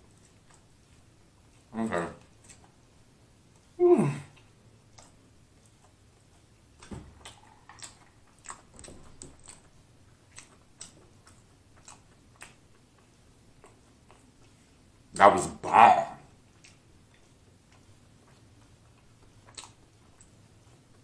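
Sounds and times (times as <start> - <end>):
mouth clicks and smacks chewing: 0.0 - 15.1, 16.3 - 21.0
man humming: 3.8 - 4.4.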